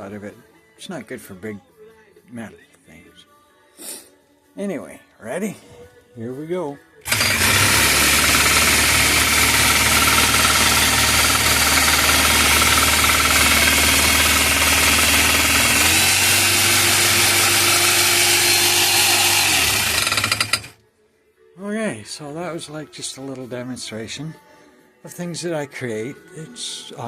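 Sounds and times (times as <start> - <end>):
power hammer mechanical clatter: 7.1 - 20.8.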